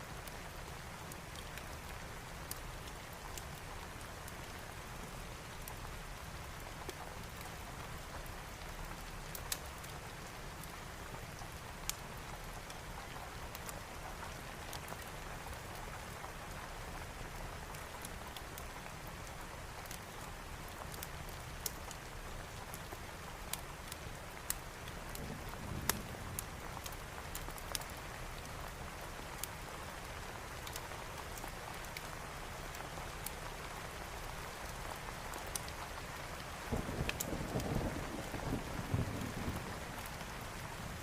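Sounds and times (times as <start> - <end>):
steady rain falling: 0.0 - 41.0
wood fire crackling and popping: 1.1 - 4.5, 8.5 - 10.8, 11.4 - 16.3, 17.6 - 38.6.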